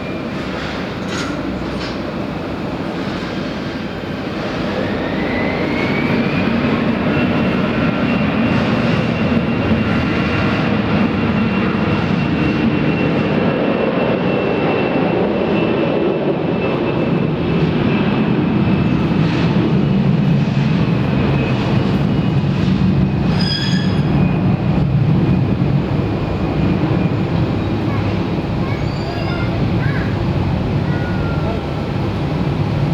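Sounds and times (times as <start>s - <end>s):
jet engines roaring: 0.0s - 32.9s.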